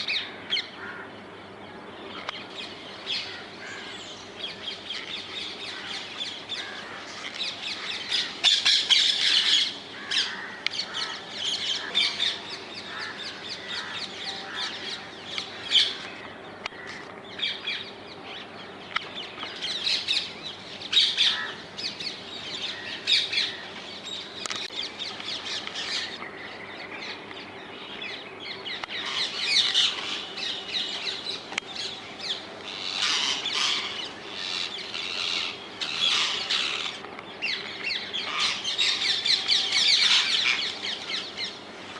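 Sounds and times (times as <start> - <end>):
faint steady hum: 0.0 - 41.9
parakeets screeching: 4.5 - 16.1, 19.5 - 23.8, 29.0 - 41.6.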